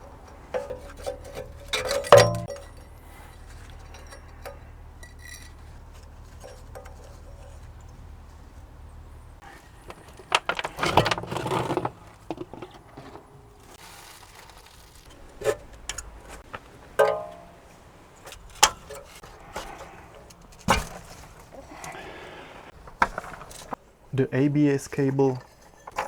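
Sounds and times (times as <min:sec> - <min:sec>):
metal tools clinking and clanking: 0:00.0 - 0:13.8, 0:15.1 - 0:22.0
ringing metallic clank: 0:00.6 - 0:05.7, 0:17.0 - 0:17.6.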